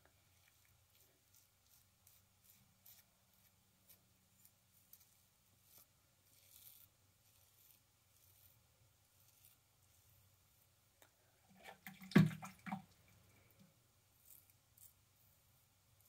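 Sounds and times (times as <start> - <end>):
razor scraping stubble: 0.4 - 10.2, 14.2 - 15.4.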